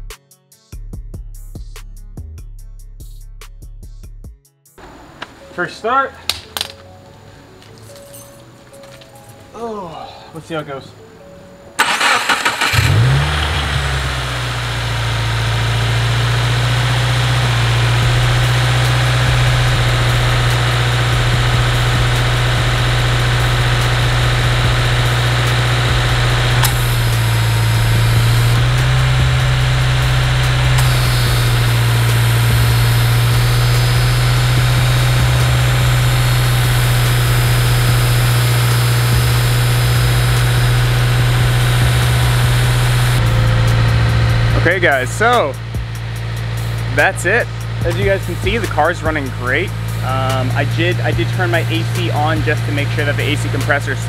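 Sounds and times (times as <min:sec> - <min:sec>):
car engine starting and idling: 0:11.7 - 0:54.0.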